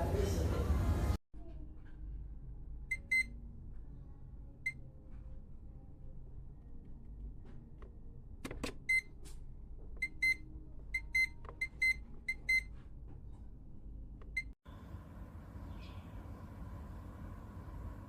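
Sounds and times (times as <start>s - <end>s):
steady low hum: 9.5s - 18.0s.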